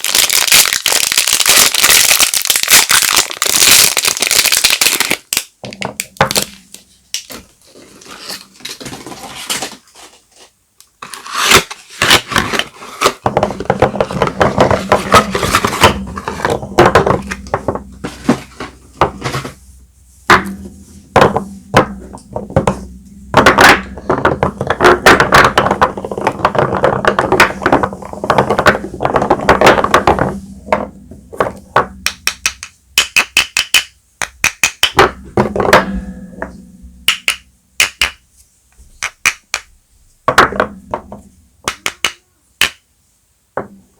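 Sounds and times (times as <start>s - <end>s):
packaging rustling and crinkling: 0.0s - 5.6s.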